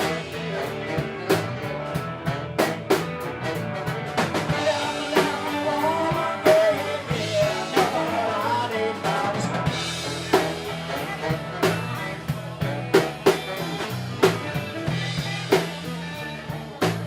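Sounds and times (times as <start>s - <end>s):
drum kit hits: 0.0s - 8.2s
rock band playing: 0.0s - 17.0s
person singing: 4.4s - 16.6s.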